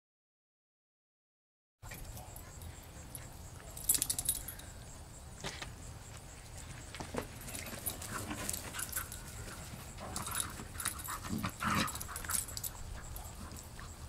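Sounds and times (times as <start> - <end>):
puppy moving about: 6.6 - 14.0
puppy panting: 7.4 - 14.0.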